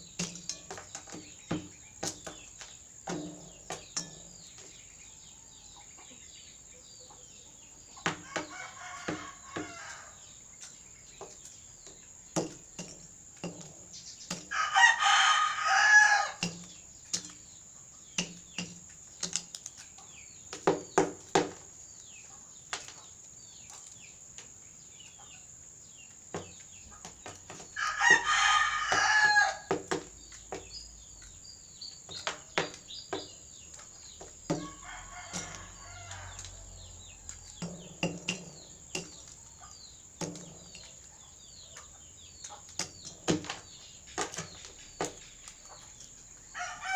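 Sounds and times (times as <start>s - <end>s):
rooster crowing: 8.2s - 10.2s, 14.5s - 16.4s, 27.8s - 29.7s, 34.6s - 37.7s, 46.5s - 46.9s.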